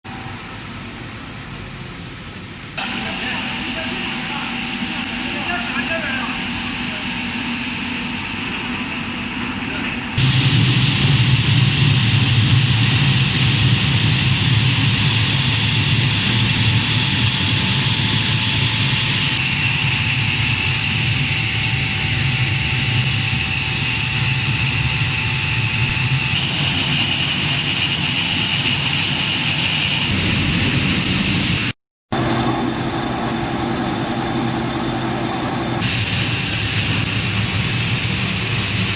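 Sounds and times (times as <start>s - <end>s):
flour milling machine grinding: 10.2s - 30.2s.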